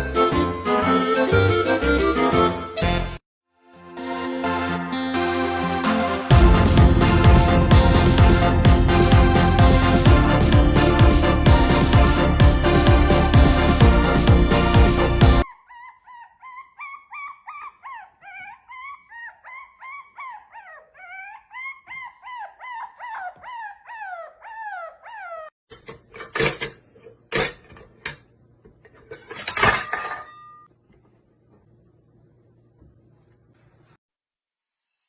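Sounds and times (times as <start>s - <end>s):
harsh noisy bursts: 6.3s - 15.4s.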